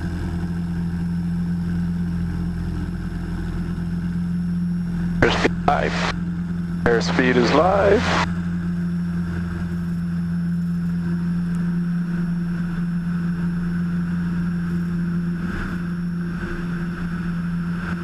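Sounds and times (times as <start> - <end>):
propeller plane engine droning: 0.0 - 18.0.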